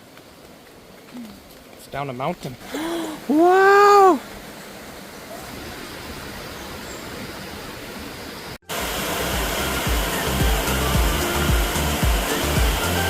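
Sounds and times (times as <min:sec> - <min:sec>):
waterfall roaring: 0:00.3 - 0:13.0
background music with low beat: 0:09.3 - 0:13.0.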